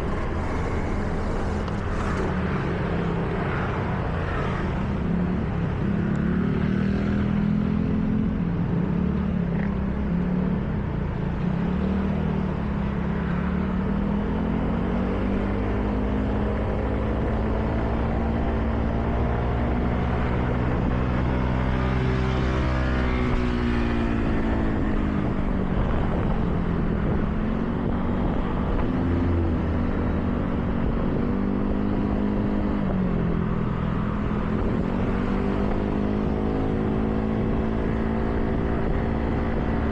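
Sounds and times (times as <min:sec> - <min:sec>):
car engine running: 0:00.0 - 0:02.5.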